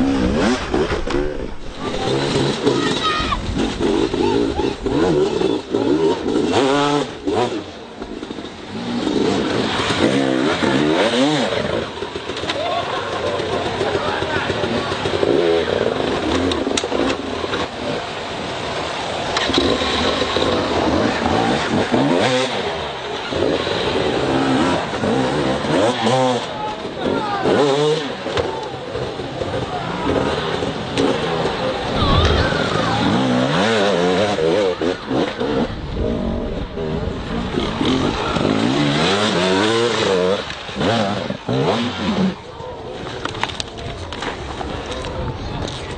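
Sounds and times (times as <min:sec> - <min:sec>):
motocross motorcycle engines revving: 0:00.0 - 0:45.9.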